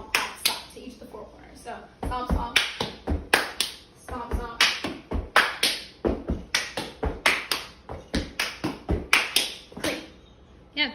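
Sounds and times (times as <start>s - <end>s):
hand claps: 2.5s - 3.8s, 4.5s - 10.1s.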